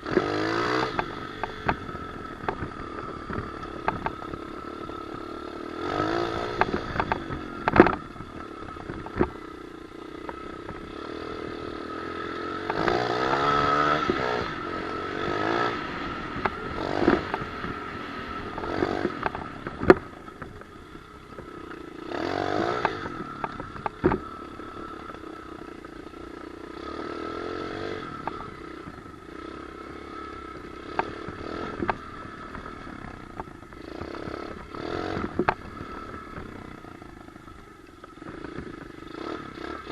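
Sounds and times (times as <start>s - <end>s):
motorbike engine revving: 0.0s - 39.9s
bike knocks and rattles: 6.0s - 9.5s, 21.3s - 24.4s.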